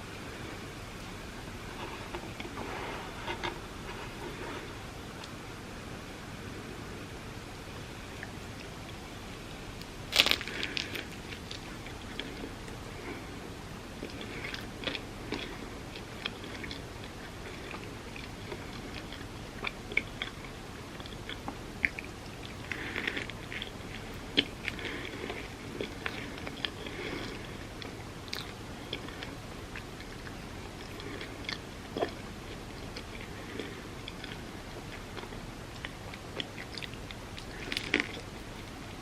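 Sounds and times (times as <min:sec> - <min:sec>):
crisp crunches: 0:09.8 - 0:13.3, 0:33.0 - 0:38.8
chewing and biting toast: 0:09.8 - 0:13.4, 0:14.0 - 0:39.0.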